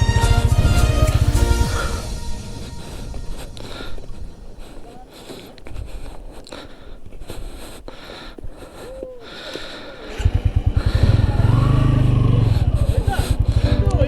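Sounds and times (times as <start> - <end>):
motorcycle engine running: 10.1 - 14.0.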